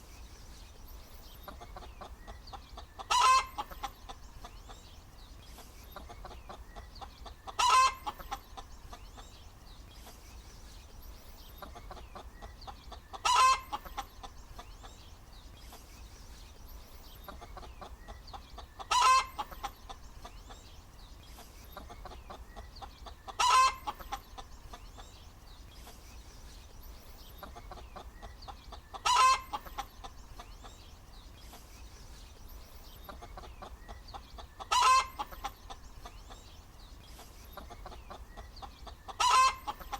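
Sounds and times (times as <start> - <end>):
hen clucking: 1.3 - 4.8, 5.9 - 9.3, 11.5 - 15.0, 17.2 - 20.6, 21.4 - 25.2, 27.3 - 30.8, 33.0 - 36.5, 37.2 - 39.9.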